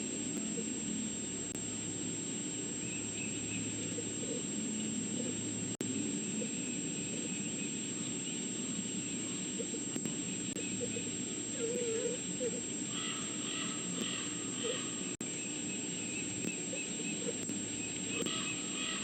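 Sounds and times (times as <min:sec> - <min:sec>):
high-pitched whine: 0:00.0 - 0:19.0
wavering animal call: 0:10.6 - 0:15.2, 0:18.1 - 0:19.0.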